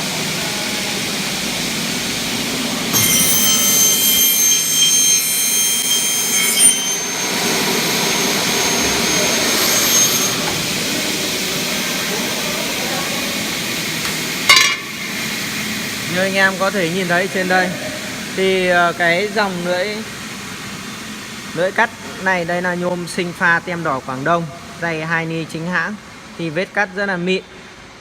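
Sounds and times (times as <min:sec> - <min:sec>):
saw motors humming: 0:00.1 - 0:14.4
saw blades cutting aluminium: 0:02.9 - 0:10.6.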